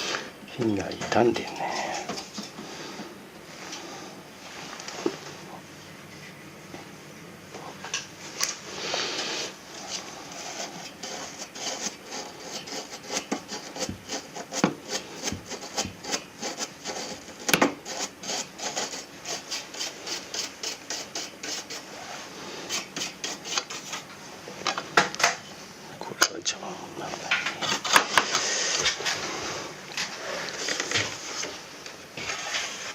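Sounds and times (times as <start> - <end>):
rubbing and scraping strokes: 7.6 - 24.2, 27.0 - 32.9.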